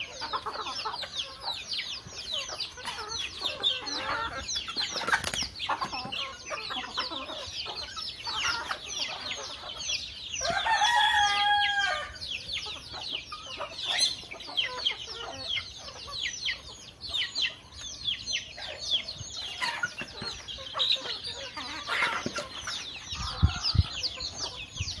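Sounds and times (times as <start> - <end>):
chickens clucking: 0.0 - 25.0
rooster crowing: 10.4 - 12.2.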